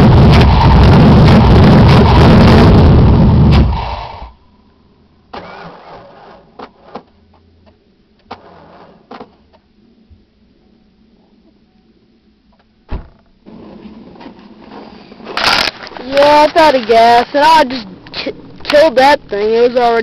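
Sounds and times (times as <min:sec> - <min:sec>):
car engine running loudly: 0:00.0 - 0:04.1.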